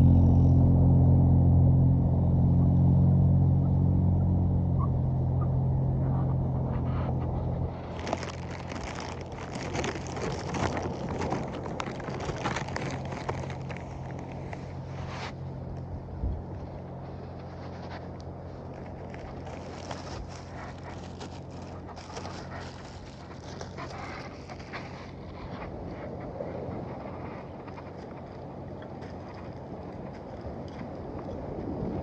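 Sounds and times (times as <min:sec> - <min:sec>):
low engine rumble: 0:00.0 - 0:32.0
bonfire crackling and popping: 0:07.8 - 0:14.8.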